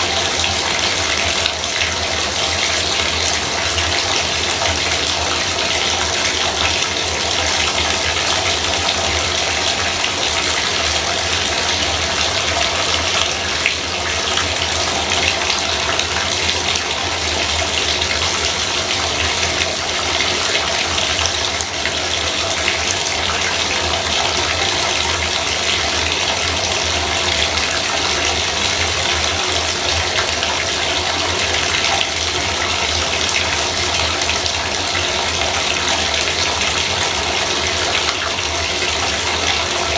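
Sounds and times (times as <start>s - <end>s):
bathtub faucet running: 0.0s - 39.9s.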